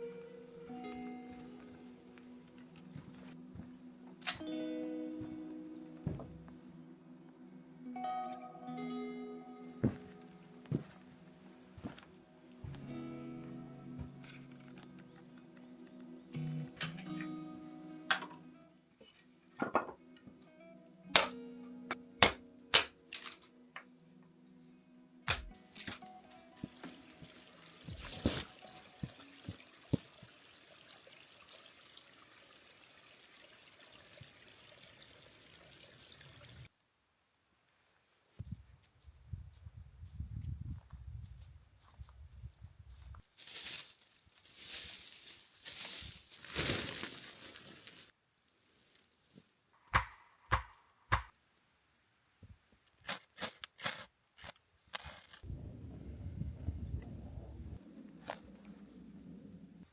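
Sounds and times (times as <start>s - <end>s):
water running: 26.6s - 36.7s
sharp knocks: 49.9s - 51.3s.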